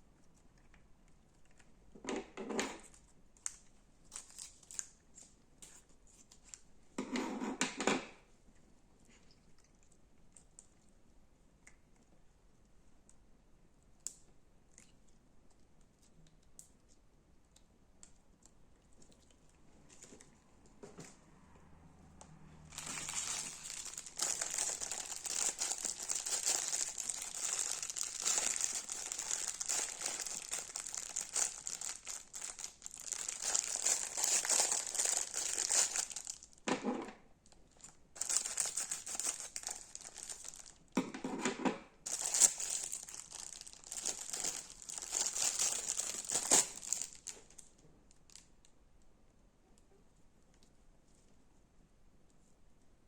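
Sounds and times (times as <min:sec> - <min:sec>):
slime squishing: 0:22.7 - 0:36.6, 0:37.8 - 0:40.8, 0:42.1 - 0:47.6
crunchy slime crackling: 0:22.7 - 0:36.7, 0:37.8 - 0:40.9, 0:42.1 - 0:47.7.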